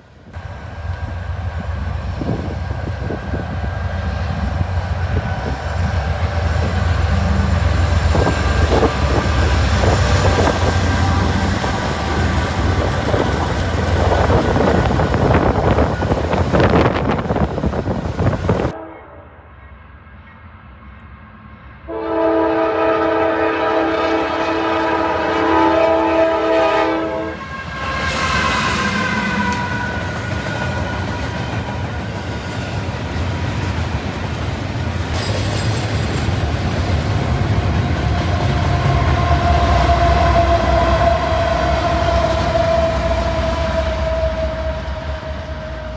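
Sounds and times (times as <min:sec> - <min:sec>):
train passing with wheel clatter: 0:00.0 - 0:45.9
locomotive air horn: 0:18.8 - 0:19.4, 0:21.9 - 0:31.2, 0:38.3 - 0:45.9.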